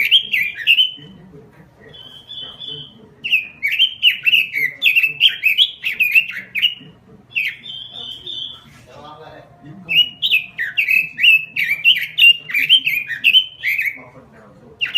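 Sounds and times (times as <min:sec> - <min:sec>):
bird singing whistled notes: 0:00.0 - 0:01.1, 0:01.9 - 0:08.7, 0:09.9 - 0:14.0.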